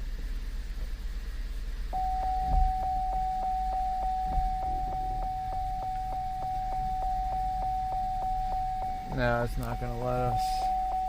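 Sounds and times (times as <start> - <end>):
car engine rumble: 0.0 - 11.0
pulsing car warning chime: 1.9 - 11.0
dull thump: 2.0 - 9.1.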